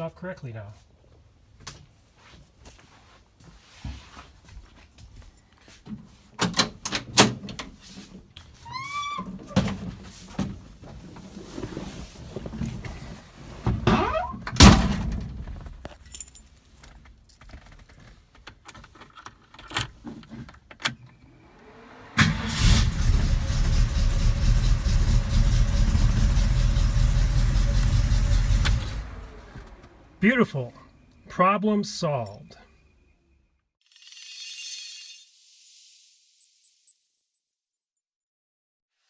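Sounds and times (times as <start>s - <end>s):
car engine starting and idling: 21.2s - 30.3s.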